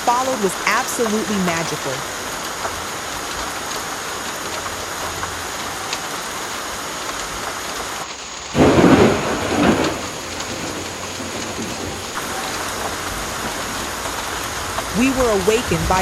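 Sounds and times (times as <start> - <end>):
heavy rain on roof: 0.0 - 16.0
thunder rumble: 8.4 - 16.0.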